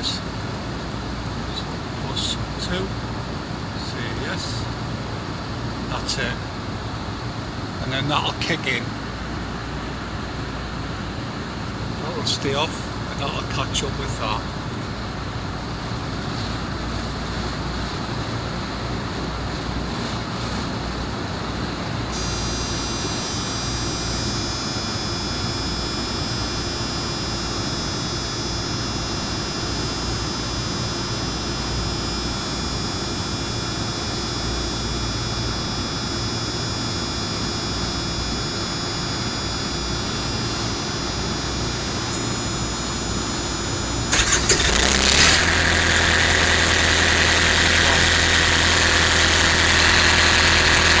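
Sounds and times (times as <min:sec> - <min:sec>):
high steady whining tones: 0:00.0 - 0:51.0
refrigeration unit humming: 0:08.8 - 0:51.0
loud engine sound: 0:41.6 - 0:51.0.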